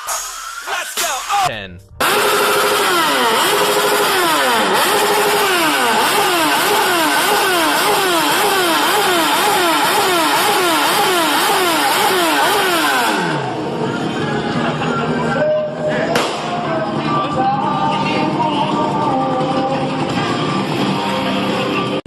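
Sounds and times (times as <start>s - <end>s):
motorcycle engine revving: 1.9s - 14.2s.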